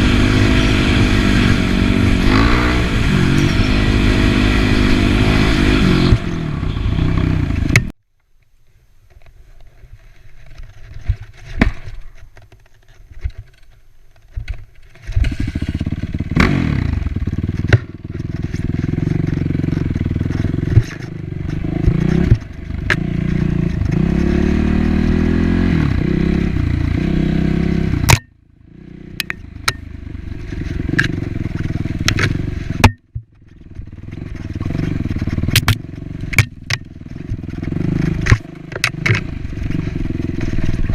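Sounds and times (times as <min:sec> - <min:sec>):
dirt bike engine revving: 0:00.0 - 0:07.9, 0:15.2 - 0:32.9, 0:33.8 - 0:40.9.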